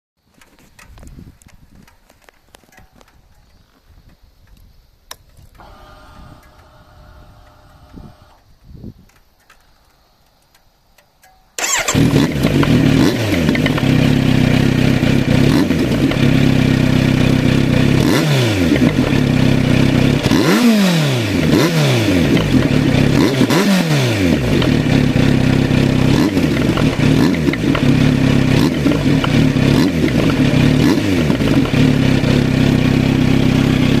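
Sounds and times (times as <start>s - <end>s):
motorcycle engine idling: 11.6s - 20.4s, 24.2s - 34.0s.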